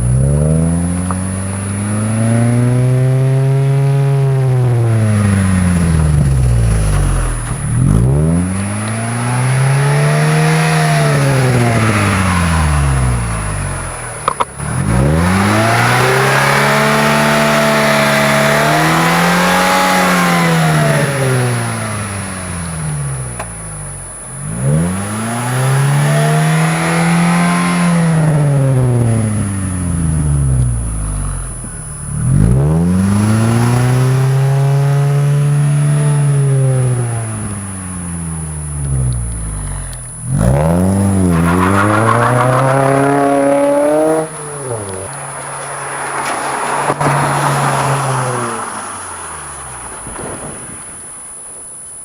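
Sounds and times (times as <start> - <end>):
car engine revving: 0.0 - 50.7.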